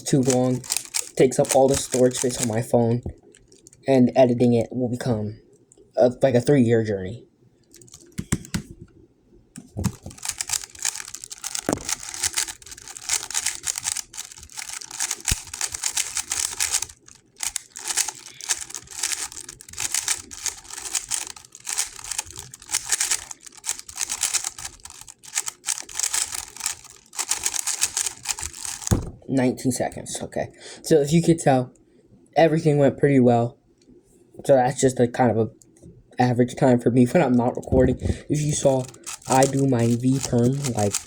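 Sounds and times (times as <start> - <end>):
speedcube turning clatter: 0.0 - 2.7, 9.6 - 29.0, 38.4 - 41.0.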